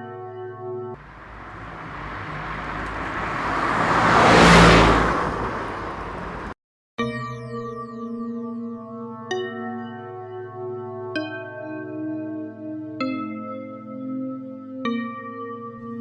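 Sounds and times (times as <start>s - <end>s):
rushing whoosh: 1.0s - 6.6s.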